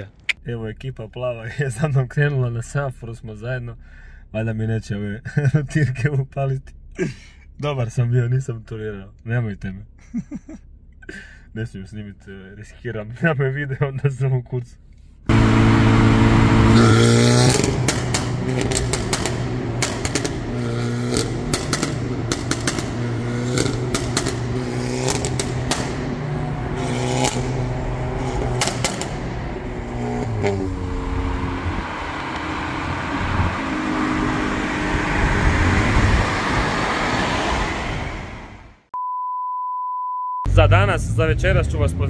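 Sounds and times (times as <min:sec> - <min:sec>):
car engine revving: 0:15.3 - 0:38.8, 0:40.5 - 0:42.0
sharp cracks: 0:17.4 - 0:26.2, 0:28.2 - 0:29.5.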